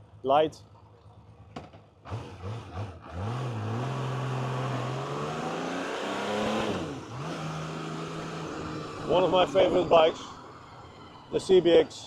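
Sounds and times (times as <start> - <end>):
motorcycle engine revving: 1.3 - 10.7.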